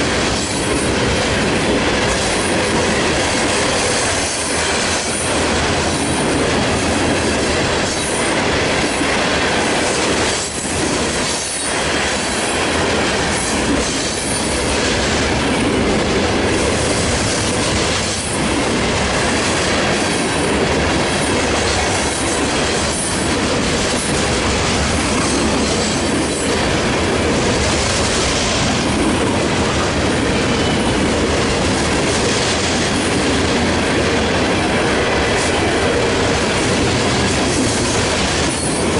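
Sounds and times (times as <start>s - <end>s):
freight train rolling past: 0.0s - 38.9s
rail joint clicks: 0.0s - 38.9s.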